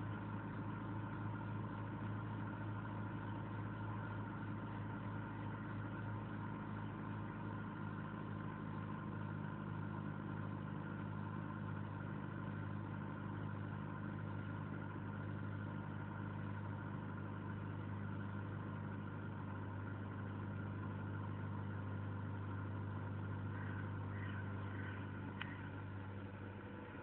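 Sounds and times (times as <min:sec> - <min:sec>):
car engine idling: 0:00.0 - 0:27.0
click: 0:25.4 - 0:25.6.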